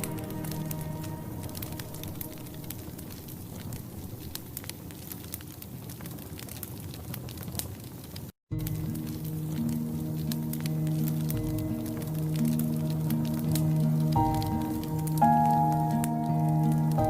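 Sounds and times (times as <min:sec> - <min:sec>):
low hiss: 0:00.0 - 0:05.1, 0:08.6 - 0:17.0
wood fire crackling: 0:00.0 - 0:17.0.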